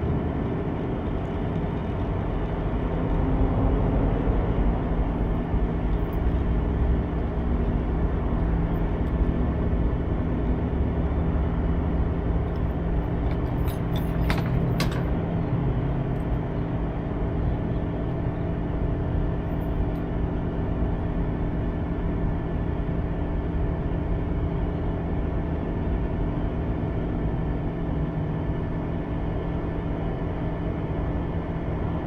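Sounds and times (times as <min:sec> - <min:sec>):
truck diesel engine and road noise: 0:00.0 - 0:32.0.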